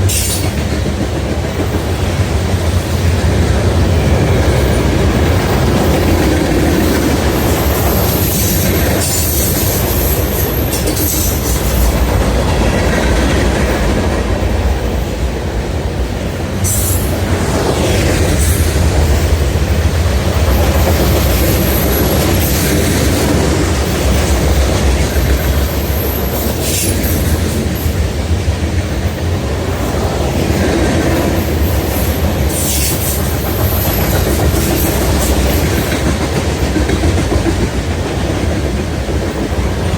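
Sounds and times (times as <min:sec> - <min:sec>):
train wheel squeals: 0:00.0 - 0:00.8, 0:04.3 - 0:12.3, 0:16.6 - 0:19.5, 0:20.2 - 0:28.0, 0:30.5 - 0:36.7
freight train rumble and clickety-clack: 0:00.0 - 0:39.9.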